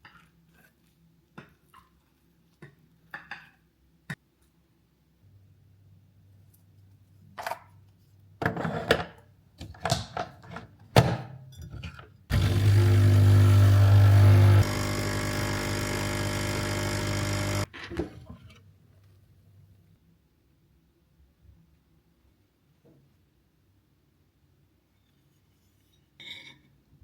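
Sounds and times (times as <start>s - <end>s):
kitchen appliance motor humming: 12.3s - 17.7s.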